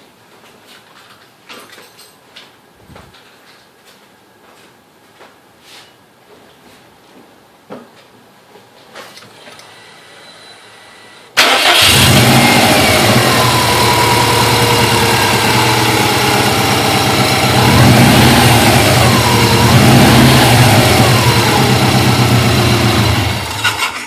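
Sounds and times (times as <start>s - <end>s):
car engine starting and idling: 11.4s - 24.0s.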